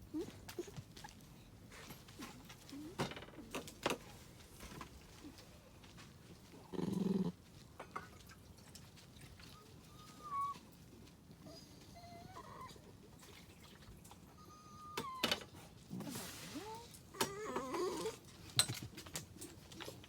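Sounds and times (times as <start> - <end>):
dog low vocal sound: 6.6 - 7.4
dog high whine: 9.8 - 10.7, 11.4 - 12.9.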